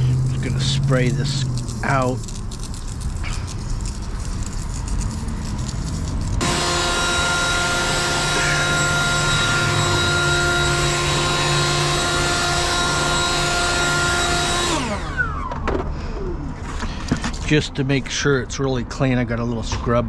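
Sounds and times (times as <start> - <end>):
electric cleaning tool whining: 0.0 - 4.8, 5.4 - 15.7.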